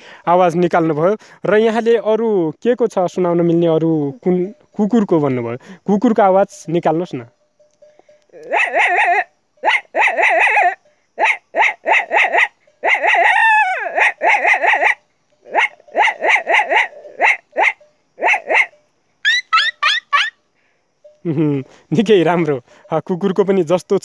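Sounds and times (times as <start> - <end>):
boy imitating dog barks: 8.3 - 20.3.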